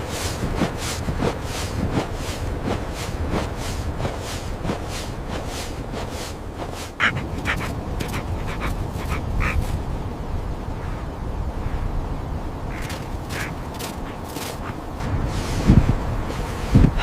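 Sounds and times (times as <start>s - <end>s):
crunching footsteps: 0.0s - 9.8s, 12.7s - 16.9s
low wind rumble: 0.0s - 17.0s
harsh animal calls: 7.0s - 9.8s.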